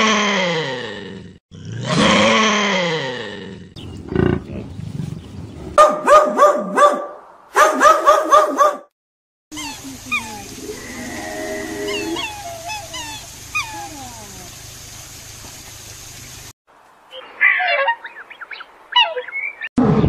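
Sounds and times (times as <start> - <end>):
dog barking high yelps: 5.8 - 8.9, 17.4 - 18.2
birds chirping and calling: 10.0 - 13.8, 17.1 - 19.7.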